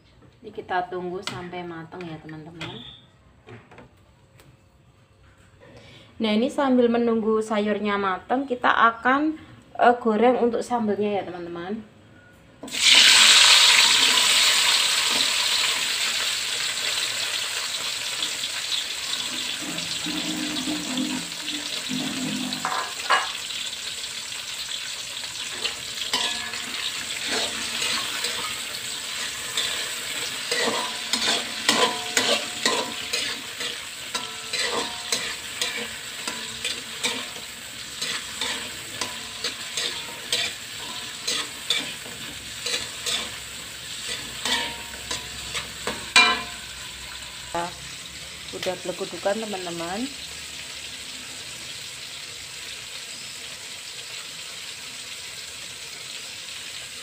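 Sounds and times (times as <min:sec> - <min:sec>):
vegetables sizzling in hot oil: 0:12.7 - 0:57.0
metal spatula scraping a wok: 0:19.2 - 0:23.6, 0:25.4 - 0:47.5.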